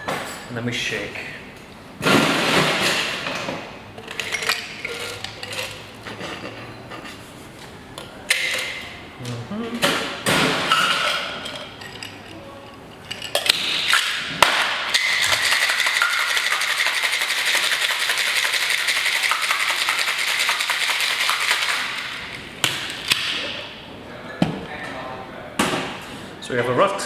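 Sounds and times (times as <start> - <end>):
ice rattling in cocktail shaker: 14.9 - 22.4.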